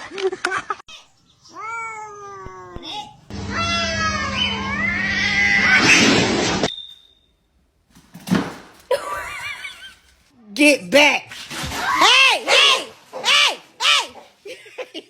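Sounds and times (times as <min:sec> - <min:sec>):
cat meowing and yowling: 0:01.5 - 0:05.9.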